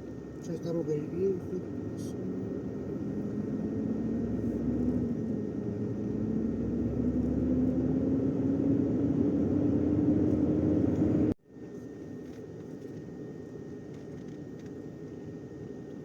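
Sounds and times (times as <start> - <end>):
truck engine accelerating: 1.2 - 11.4.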